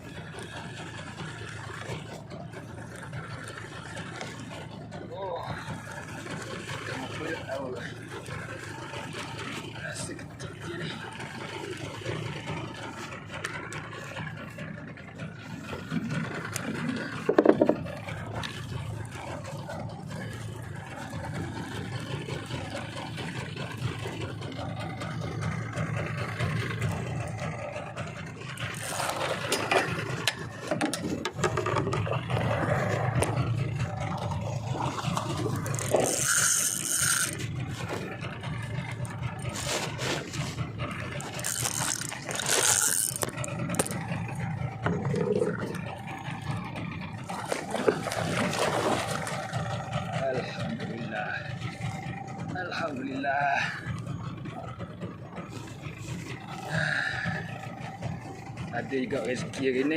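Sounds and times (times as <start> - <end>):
boat motor hum: 0.0 - 59.9
fishing reel winding: 28.6 - 29.6, 35.4 - 37.5, 41.2 - 44.1.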